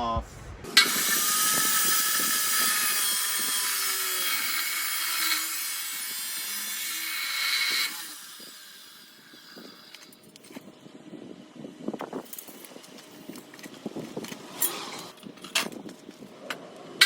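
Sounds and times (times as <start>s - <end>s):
cut-off saw grinding steel: 0.7s - 10.3s.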